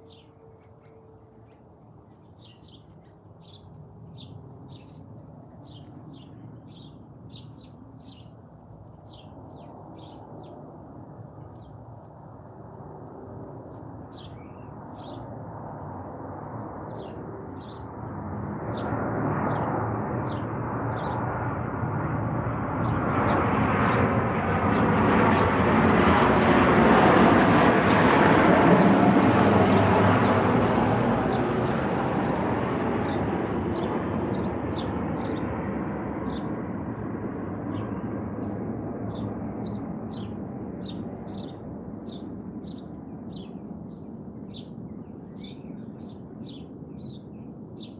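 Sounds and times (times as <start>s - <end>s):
small birds chirping: 0.0s - 10.6s, 11.4s - 11.9s, 13.7s - 15.3s, 16.6s - 18.0s, 18.7s - 21.2s, 28.8s - 35.5s, 36.2s - 36.6s, 37.6s - 47.9s.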